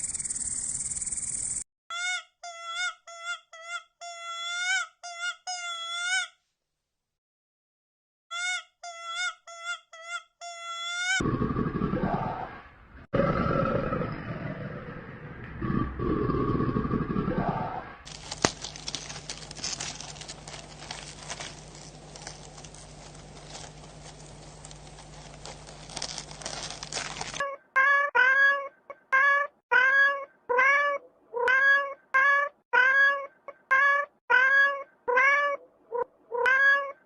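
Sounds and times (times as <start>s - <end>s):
low hum: 11.2s - 27.4s
cat meowing: 27.8s - 35.6s, 36.4s - 37.0s.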